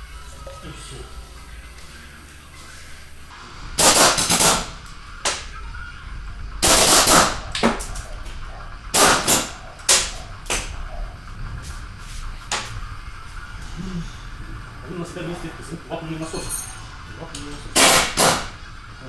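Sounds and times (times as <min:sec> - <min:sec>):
impact wrench hammering: 0:03.8 - 0:05.4, 0:06.6 - 0:08.1, 0:09.0 - 0:10.7, 0:17.8 - 0:18.6.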